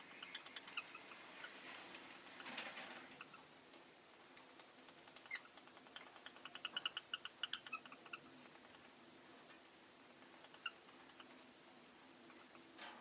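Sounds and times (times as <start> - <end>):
lovebirds chirping: 0.0 - 1.6, 5.1 - 8.8, 10.4 - 11.4
soft rush of noise: 0.0 - 13.0.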